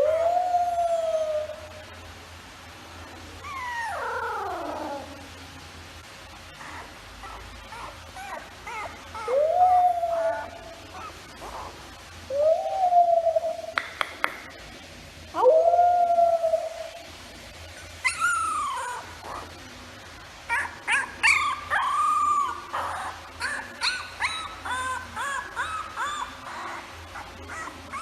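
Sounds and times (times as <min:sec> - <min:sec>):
puppy howling: 0:00.0 - 0:01.8, 0:03.4 - 0:05.2, 0:06.6 - 0:11.7, 0:15.4 - 0:17.0, 0:18.0 - 0:19.6, 0:20.5 - 0:28.0
puppy whimpering and yipping: 0:03.4 - 0:05.1, 0:06.6 - 0:11.7, 0:18.0 - 0:19.5, 0:20.5 - 0:28.0.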